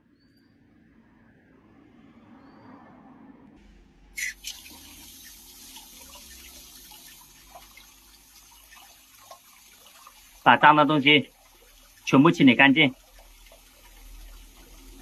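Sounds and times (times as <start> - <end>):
water running from tap: 4.2 - 15.0.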